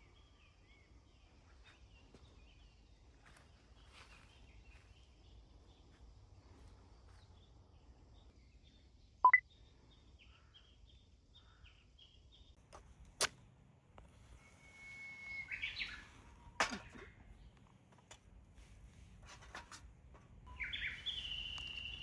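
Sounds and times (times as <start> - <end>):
bird whistling: 14.4 - 16.2, 20.5 - 22.0
birds chirping: 15.2 - 17.6, 20.5 - 22.0.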